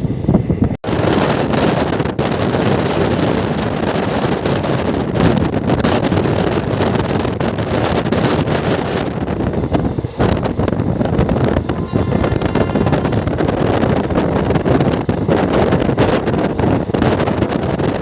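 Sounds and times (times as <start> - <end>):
moving train running noise: 0.0 - 18.0
wind on microphone: 0.0 - 18.0.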